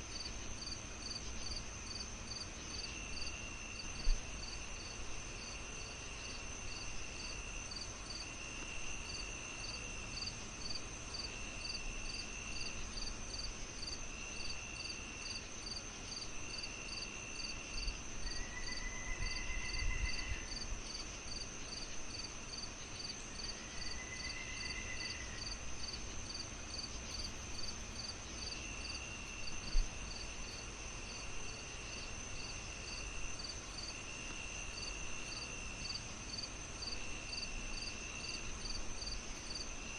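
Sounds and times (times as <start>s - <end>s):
lower insect chirp: 0.0s - 39.9s
pulsing cricket chirp: 0.0s - 39.9s
high insect trill: 9.0s - 39.9s
arched insect calls: 14.8s - 39.9s.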